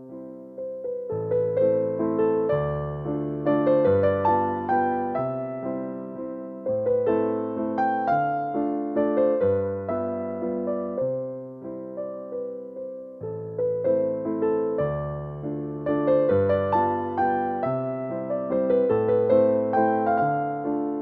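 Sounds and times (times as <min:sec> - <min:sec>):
slow gentle piano music: 0:00.0 - 0:21.0.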